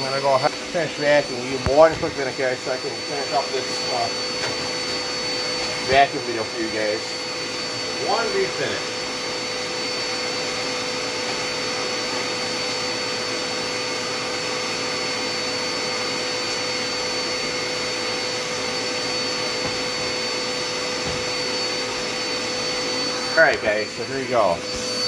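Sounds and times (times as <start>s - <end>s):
vacuum cleaner running: 0.0s - 25.0s.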